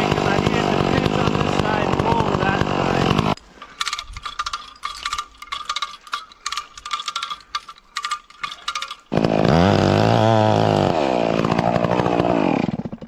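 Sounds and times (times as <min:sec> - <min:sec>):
chainsaw revving: 0:00.0 - 0:03.4, 0:08.3 - 0:13.0
ringing metallic clicks: 0:03.6 - 0:09.1.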